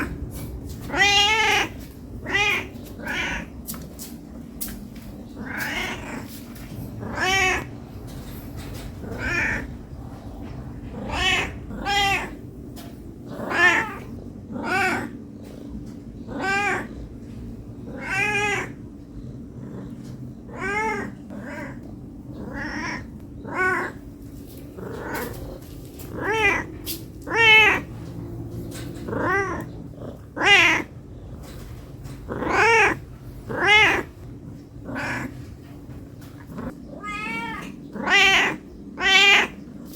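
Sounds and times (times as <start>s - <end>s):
cat meowing: 0.0s - 3.6s, 5.3s - 6.4s, 7.0s - 7.7s, 9.0s - 9.8s, 10.9s - 12.5s, 13.4s - 15.2s, 16.3s - 17.0s, 17.9s - 18.9s, 20.5s - 24.0s, 24.8s - 27.9s, 29.0s - 31.0s, 32.3s - 34.2s, 34.8s - 35.4s, 36.6s - 39.7s.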